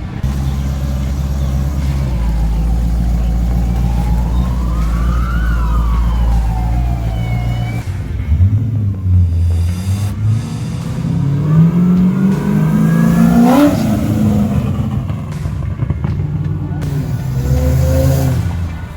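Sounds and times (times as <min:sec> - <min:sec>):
thin whine climbing in pitch: 0:00.0 - 0:08.1
car engine droning and revving: 0:00.0 - 0:18.9.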